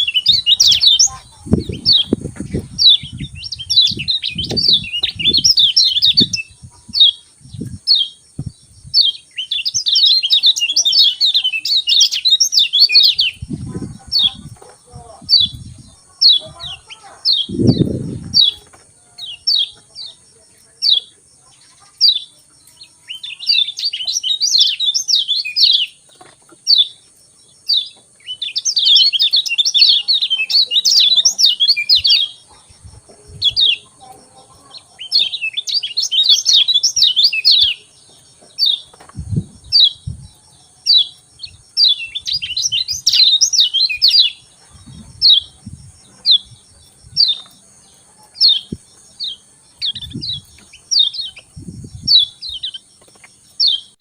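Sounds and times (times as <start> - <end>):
bird chirps: 0.0 - 54.0
rapid twittering birdsong: 0.0 - 54.0.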